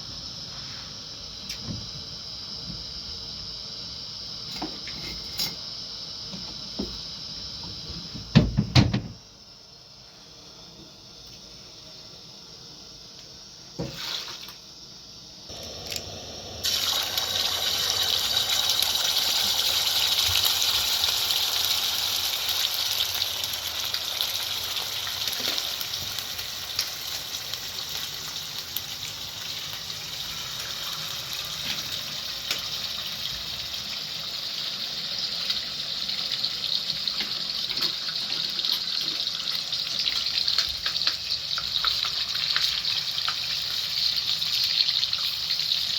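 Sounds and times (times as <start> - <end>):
water running: 15.5 - 21.3.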